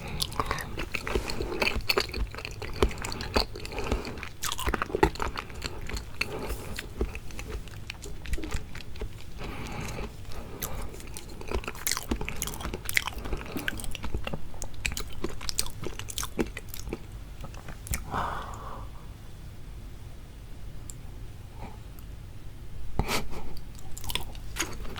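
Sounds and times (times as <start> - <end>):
wet chewing and biting: 0.0 - 18.1, 23.6 - 24.9.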